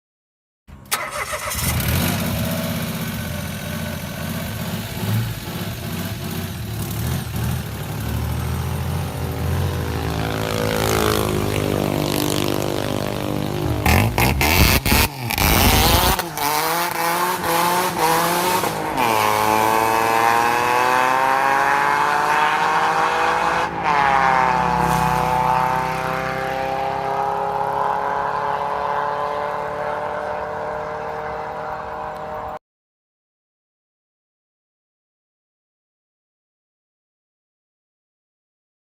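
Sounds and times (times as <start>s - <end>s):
car engine revving: 0.9s - 32.6s.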